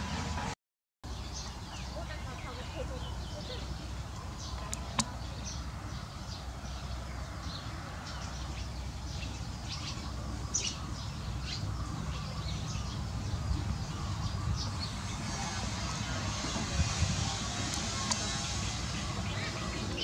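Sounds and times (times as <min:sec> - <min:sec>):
songbird chirping: 0:01.0 - 0:20.0
steady low rumble: 0:01.5 - 0:20.0.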